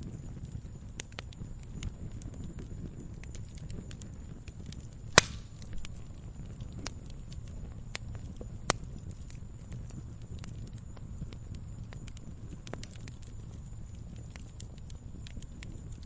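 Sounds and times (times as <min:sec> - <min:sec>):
wood fire crackling: 0:00.0 - 0:16.0
firewood splitting pops: 0:04.8 - 0:06.2.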